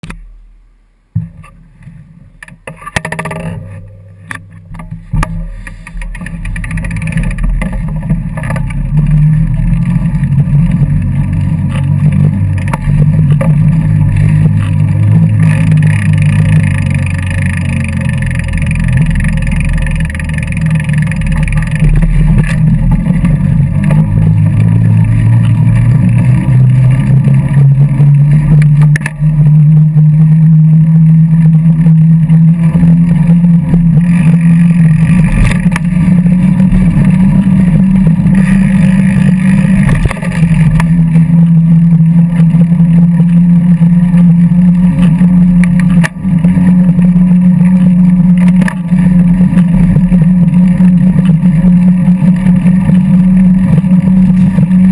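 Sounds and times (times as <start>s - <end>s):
clicks and knocks: 2.4s - 9.2s.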